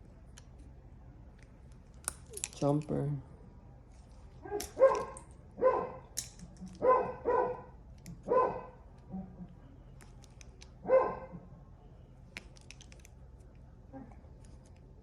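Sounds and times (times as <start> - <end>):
dog barking: 4.4 - 6.1, 6.8 - 9.5, 10.8 - 11.4.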